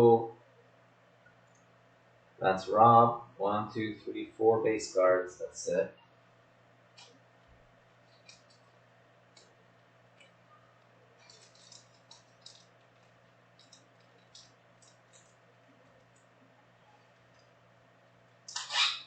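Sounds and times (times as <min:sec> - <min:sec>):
trading cards rustling: 0:11.2 - 0:16.2.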